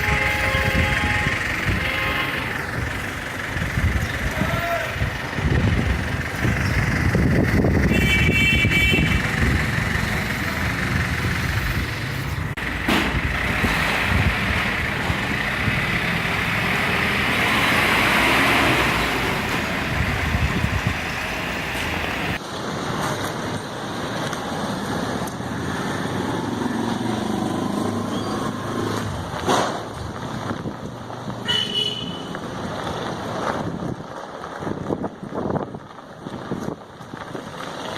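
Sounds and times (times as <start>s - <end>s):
wind buffeting microphone: 0.0s - 17.1s, 17.7s - 22.4s, 29.0s - 31.5s, 32.3s - 37.9s
street traffic noise: 0.0s - 37.9s.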